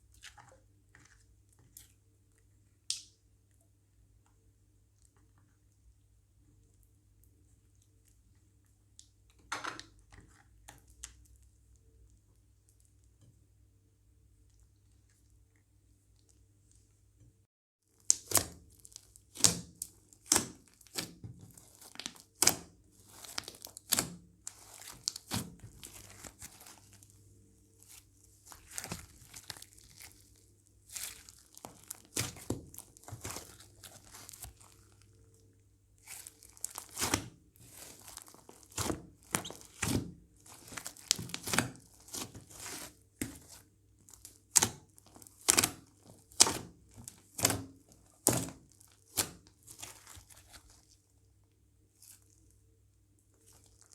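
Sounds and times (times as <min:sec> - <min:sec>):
slime squeezed with sticky pops: 0:36.0 - 0:50.8.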